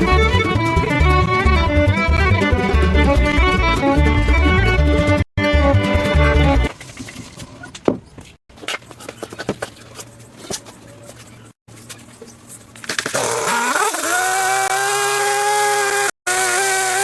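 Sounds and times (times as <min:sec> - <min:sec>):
violin music: 0:00.0 - 0:06.7
power tool motor whine: 0:13.1 - 0:17.0.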